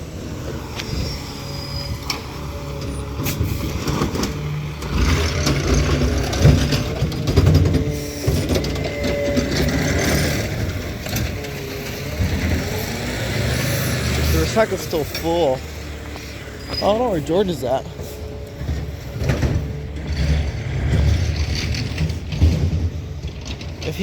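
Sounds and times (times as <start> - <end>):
garbage truck engine revving: 0.0 - 24.0
truck mechanism clicks and knocks: 2.0 - 12.8.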